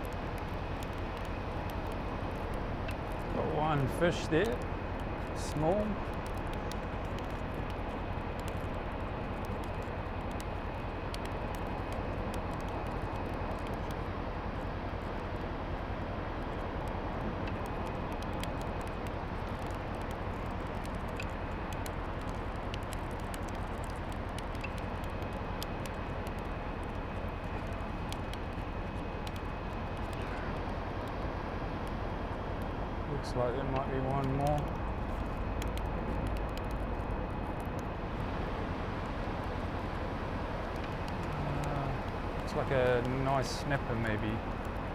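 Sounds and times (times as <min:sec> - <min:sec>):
winch mechanical drone: 0:37.9 - 0:44.9
faint high whine: 0:38.0 - 0:44.9.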